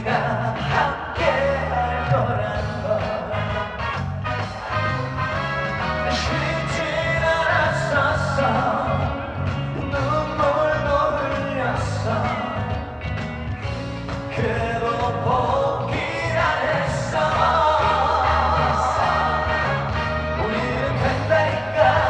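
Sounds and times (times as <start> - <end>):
band playing: 0.0 - 22.0
person singing: 6.0 - 12.8, 14.2 - 22.0.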